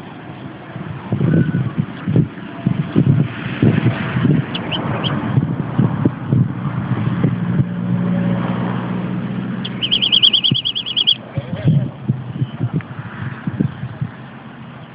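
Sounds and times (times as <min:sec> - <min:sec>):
wind buffeting microphone: 0:00.0 - 0:14.9
fast trill of high chirps: 0:04.5 - 0:05.2, 0:09.6 - 0:11.2.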